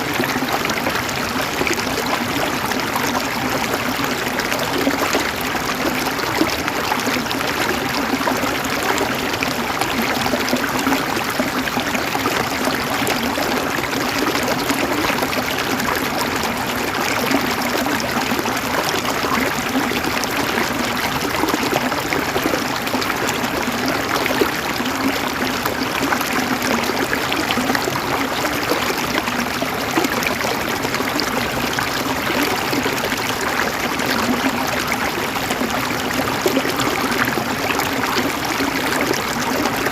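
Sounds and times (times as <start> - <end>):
river water gurgling over stones: 0.0 - 39.9.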